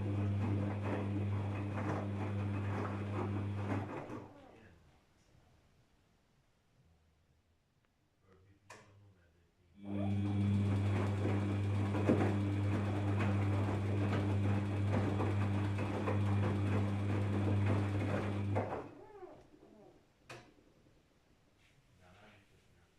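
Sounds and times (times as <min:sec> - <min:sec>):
washing machine hum: 0:00.0 - 0:04.6, 0:09.8 - 0:20.0.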